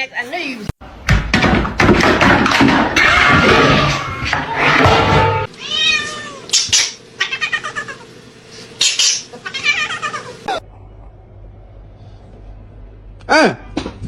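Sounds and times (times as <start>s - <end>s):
cat meowing and yowling: 5.6s - 6.5s.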